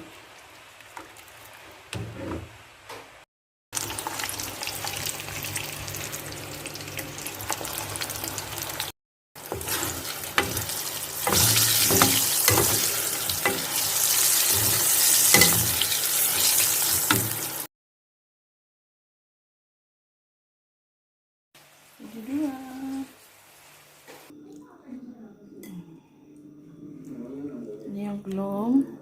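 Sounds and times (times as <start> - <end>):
food sizzling in a pan: 0.0 - 2.8, 3.8 - 17.7, 21.6 - 24.3
utensil scraping and knocking pan: 9.5 - 15.8.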